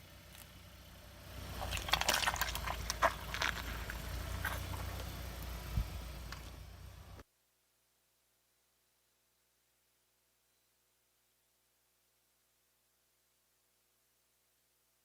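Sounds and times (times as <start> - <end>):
car engine rumbling: 0.0 - 7.2
tyre crushing crunchy objects: 1.4 - 5.7.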